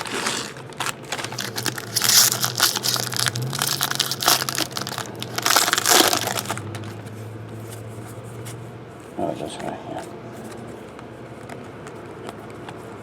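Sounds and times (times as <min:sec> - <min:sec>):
wrapper crinkling and crackling: 0:00.0 - 0:07.1.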